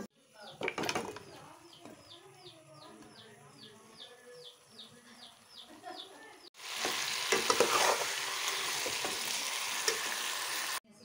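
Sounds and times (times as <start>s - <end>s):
food sizzling in hot oil: 6.6s - 10.8s
metal ladle scraping pot: 6.9s - 10.2s.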